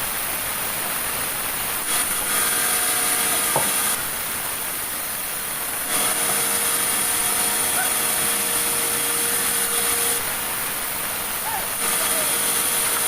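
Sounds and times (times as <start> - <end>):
sawmill saw cutting log: 1.8 - 13.0
high saw whine: 5.3 - 10.5, 11.7 - 13.0.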